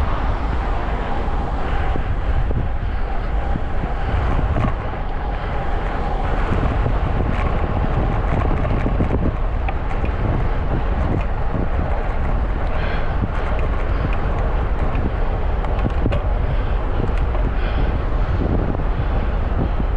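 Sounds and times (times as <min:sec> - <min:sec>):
bicycle ticks and rattles: 0:00.0 - 0:19.9
wind rumble on microphone: 0:00.0 - 0:19.9.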